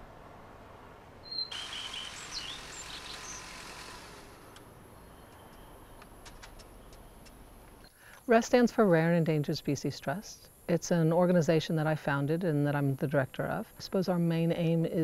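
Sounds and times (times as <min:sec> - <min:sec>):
bird chirps and whistles: 0:01.2 - 0:03.4
steady hiss: 0:01.5 - 0:11.6.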